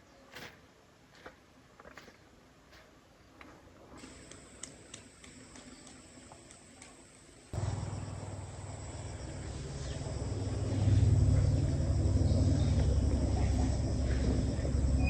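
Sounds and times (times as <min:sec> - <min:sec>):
faint insect chirping: 0:04.0 - 0:15.0
low engine rumble: 0:07.6 - 0:15.0.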